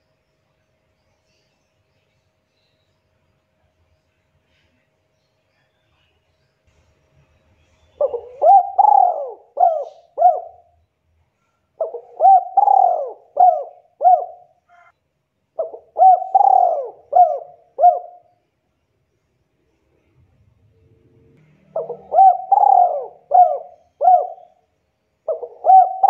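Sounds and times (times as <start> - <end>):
dove cooing: 8.0 - 10.7, 11.8 - 14.9, 15.6 - 18.3, 21.6 - 24.6, 25.2 - 26.0.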